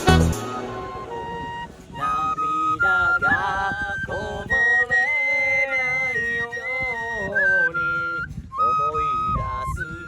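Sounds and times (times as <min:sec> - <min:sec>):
lower melodic part: 0:00.0 - 0:02.8
bamboo flute melody: 0:00.0 - 0:10.0.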